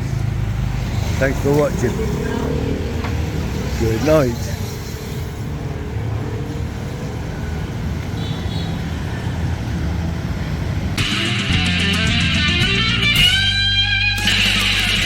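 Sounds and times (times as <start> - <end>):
vehicle engine running: 0.0 - 4.9
road noise: 0.0 - 15.0
loud electric guitar music: 11.0 - 15.0.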